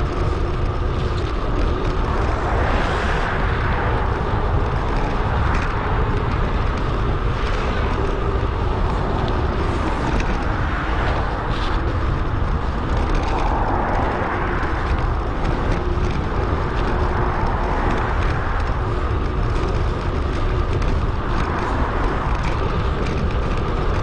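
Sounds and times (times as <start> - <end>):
road and tyre noise: 0.0 - 24.0
wind rushing over microphone: 0.0 - 24.0.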